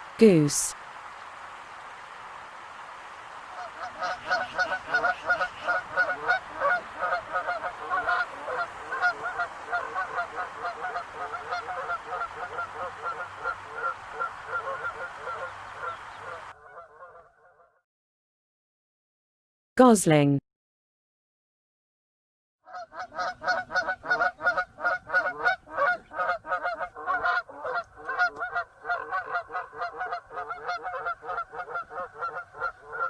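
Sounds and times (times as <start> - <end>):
goose honking: 3.3 - 17.3, 23.0 - 33.0.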